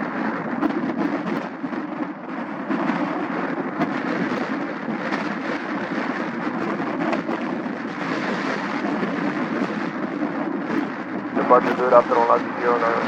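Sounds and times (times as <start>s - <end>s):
jet engines at takeoff: 0.0s - 13.0s.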